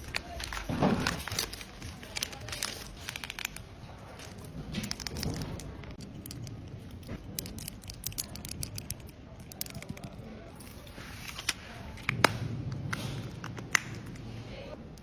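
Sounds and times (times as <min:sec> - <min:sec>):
small tools clicking and tapping: 0:06.0 - 0:10.2.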